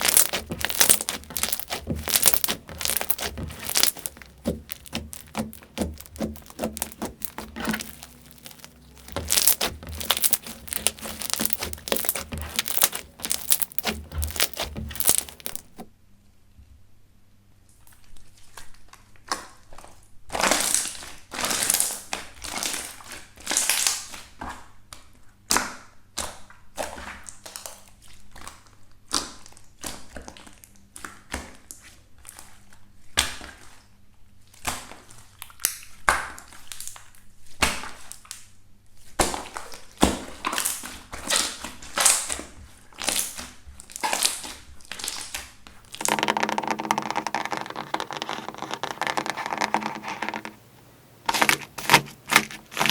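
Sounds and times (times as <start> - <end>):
slime squeezed by hand crackling: 0.0 - 15.8.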